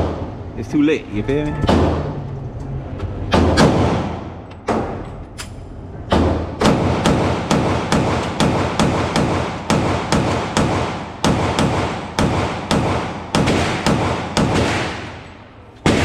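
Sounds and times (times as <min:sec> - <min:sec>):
rapid gunshots with echo: 0:06.1 - 0:16.0.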